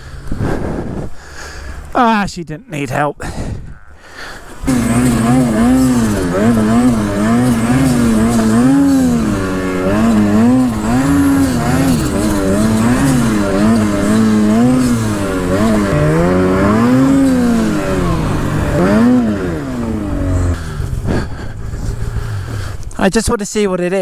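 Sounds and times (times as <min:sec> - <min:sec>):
snowmobile engine revving: 0:03.7 - 0:23.2.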